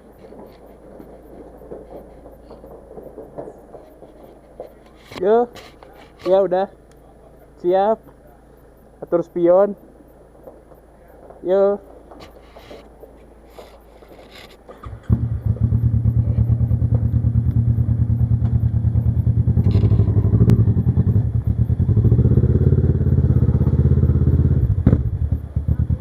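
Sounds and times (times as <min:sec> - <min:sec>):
motorcycle engine starting: 0:14.7 - 0:26.0
motorcycle engine running: 0:14.8 - 0:26.0.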